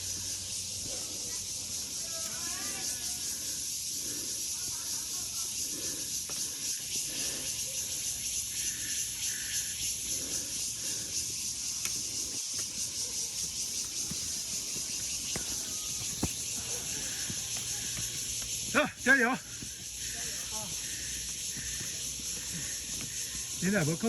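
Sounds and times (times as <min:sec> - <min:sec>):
high insect chorus: 0:00.0 - 0:24.0.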